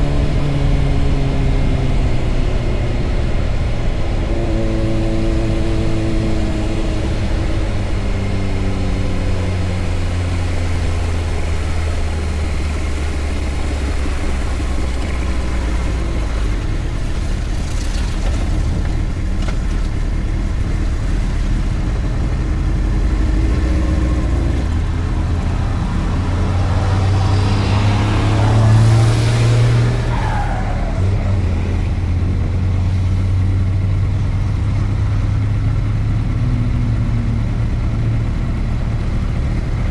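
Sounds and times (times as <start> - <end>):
motorcycle engine running: 0.0 - 28.9
road and wind noise: 0.0 - 39.9.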